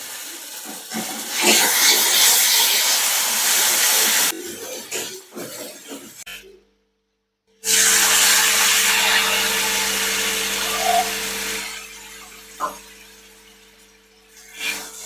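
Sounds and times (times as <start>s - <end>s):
food sizzling in hot oil: 0.0s - 6.2s, 7.7s - 15.0s.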